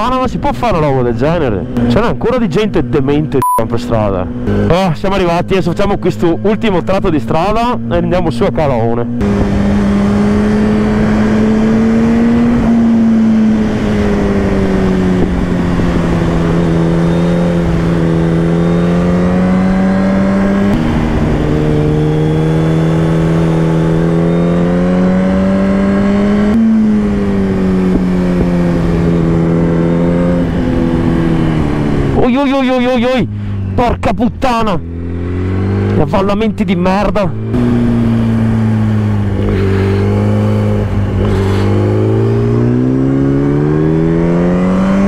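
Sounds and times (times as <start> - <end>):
motorcycle engine revving: 0.0 - 45.0
wind rush on microphone: 9.2 - 18.5, 25.2 - 32.2.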